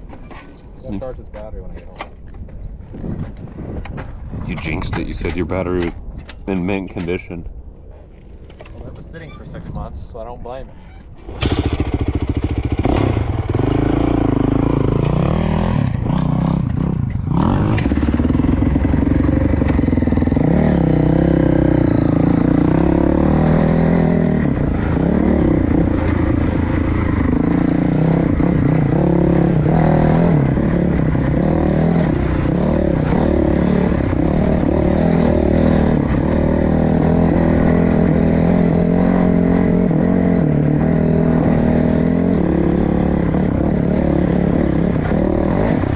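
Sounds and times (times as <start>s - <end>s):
dirt bike engine revving: 11.2s - 45.9s.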